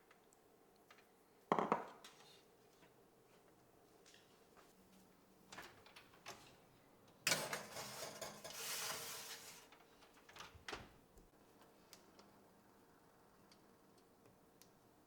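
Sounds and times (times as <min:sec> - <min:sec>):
cookware scraping slide: 0:07.3 - 0:09.7.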